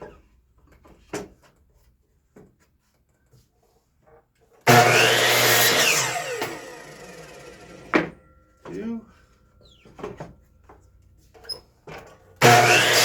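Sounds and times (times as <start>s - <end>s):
electric miter saw cutting wood: 4.6s - 8.2s, 12.4s - 13.0s
saw motor winding down: 4.7s - 7.9s, 12.4s - 13.0s.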